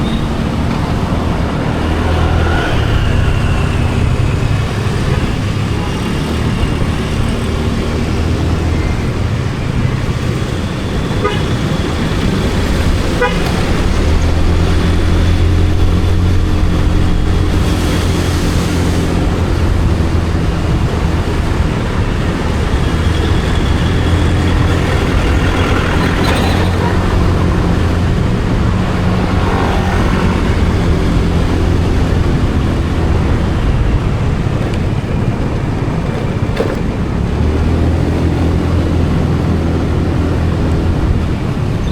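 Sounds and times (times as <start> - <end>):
vehicle horn tooting: 11.1 - 11.8, 13.1 - 13.6.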